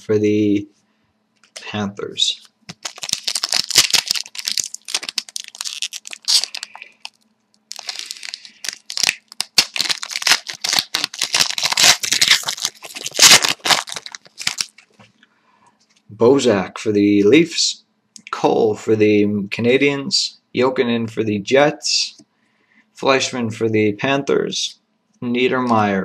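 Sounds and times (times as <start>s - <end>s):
wrapper tearing and crinkling: 2.7s - 14.9s.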